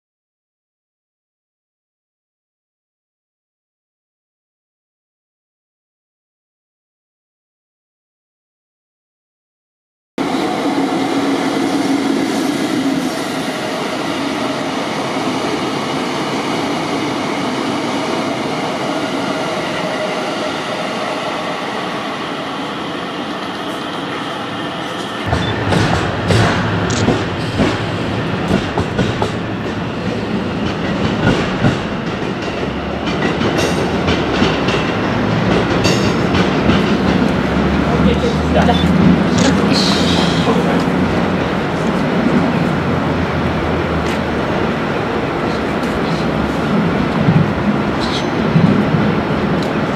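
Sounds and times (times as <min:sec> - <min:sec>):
train rumbling on rails: 0:10.2 - 0:49.9
wheels clacking over rail joints: 0:25.3 - 0:38.1.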